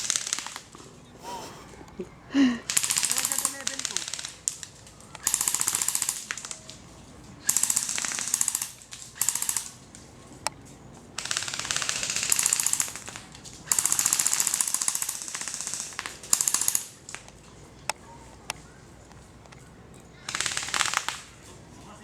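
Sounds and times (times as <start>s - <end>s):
airsoft guns firing bursts: 0.0s - 0.8s, 2.6s - 10.4s, 11.2s - 17.5s, 20.2s - 21.6s.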